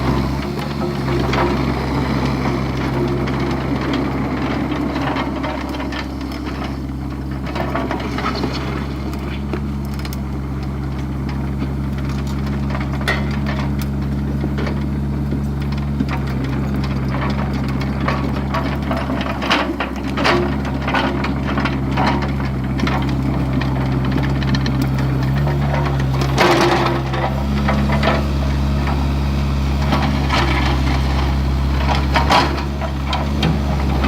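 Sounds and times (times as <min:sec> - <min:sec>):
excavator diesel engine running: 0:00.0 - 0:34.0
knocks and scrapes of digging: 0:00.0 - 0:34.0.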